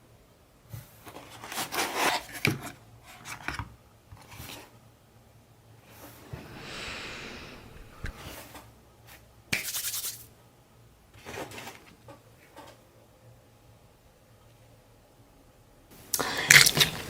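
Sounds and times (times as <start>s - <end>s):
soft rustling hiss: 6.2s - 8.4s.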